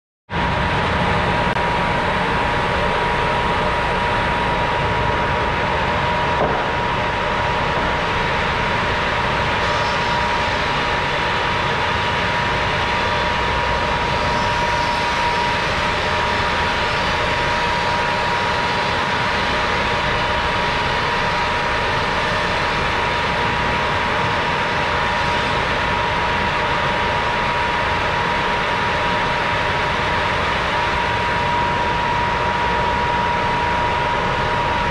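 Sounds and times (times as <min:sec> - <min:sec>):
thickness planer running: 0:00.6 - 0:34.9
brief knock: 0:06.4 - 0:06.7.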